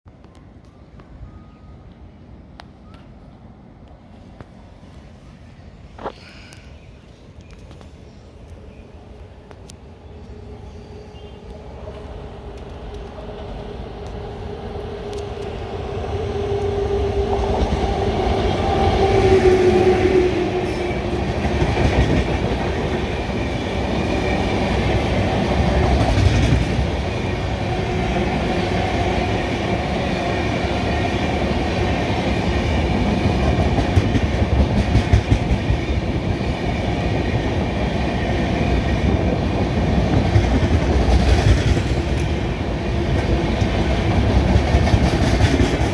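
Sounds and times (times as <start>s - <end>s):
electric locomotive hum: 1.7s - 45.9s
train wheels clickety-clack: 11.4s - 45.9s.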